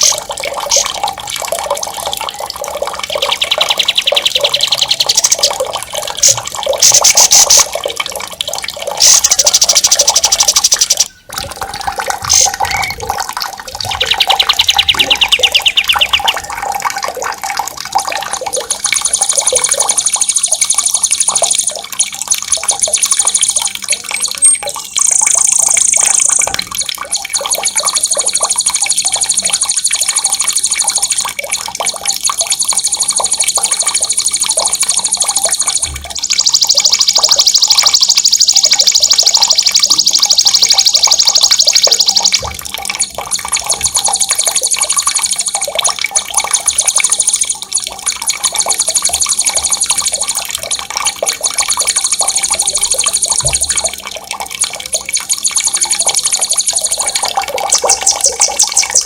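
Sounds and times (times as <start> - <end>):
songbirds trilling: 0.0 - 7.7, 8.8 - 16.8, 22.7 - 26.6, 32.5 - 42.4, 55.6 - 59.0
running water: 0.0 - 59.0.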